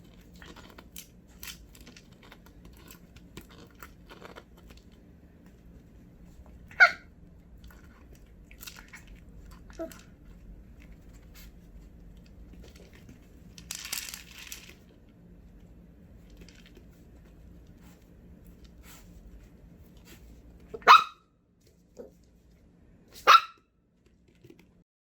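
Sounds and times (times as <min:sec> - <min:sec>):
puppy barking: 0:06.7 - 0:07.1, 0:20.7 - 0:21.3, 0:23.2 - 0:23.7.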